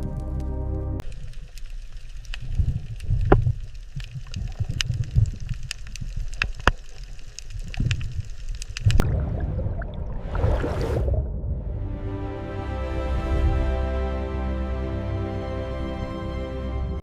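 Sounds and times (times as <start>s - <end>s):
underwater rumble of moving water: 0.0s - 12.3s
sharp clicks and pops: 1.0s - 9.2s.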